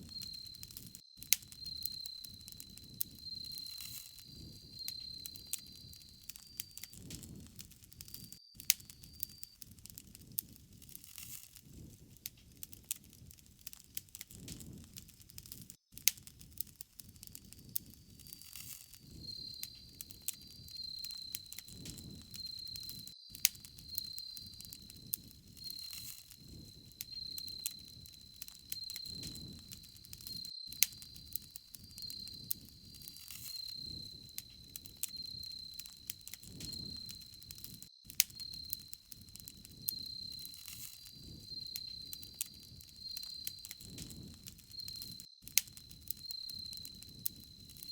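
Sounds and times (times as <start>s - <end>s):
insects trilling: 0.0s - 7.4s, 18.1s - 47.9s
thin steady high tone: 0.0s - 7.4s, 18.2s - 47.9s
campfire crackling: 0.0s - 47.9s.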